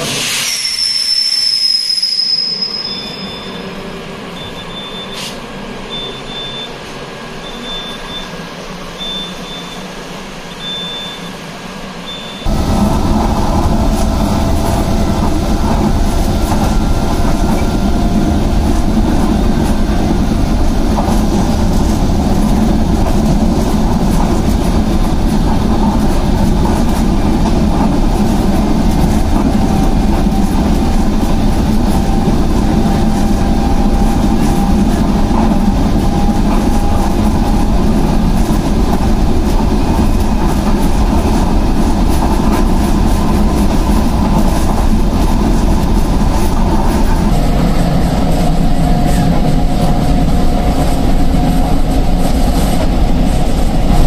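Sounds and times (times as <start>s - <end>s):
electric train running fast: 0.0s - 54.0s
high electronic beep: 12.1s - 12.5s.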